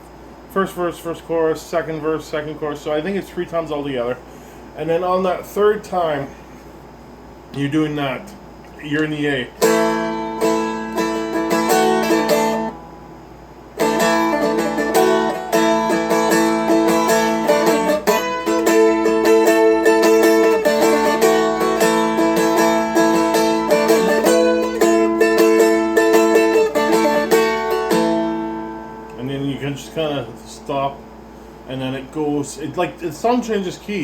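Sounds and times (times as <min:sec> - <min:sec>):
strumstick strummed in chords: 0:09.6 - 0:13.1, 0:13.7 - 0:31.2.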